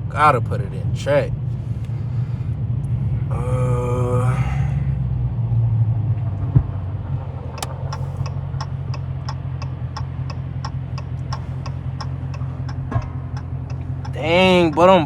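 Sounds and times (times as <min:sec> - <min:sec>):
car engine droning while cruising: 0:00.0 - 0:15.0
regular ticking: 0:07.6 - 0:15.0.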